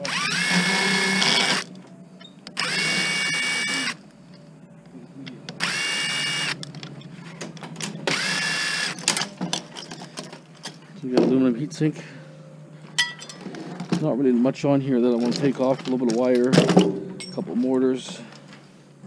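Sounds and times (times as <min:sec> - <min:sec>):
power drill whining: 0:00.0 - 0:01.7, 0:02.6 - 0:04.0, 0:05.6 - 0:06.6, 0:08.1 - 0:09.1.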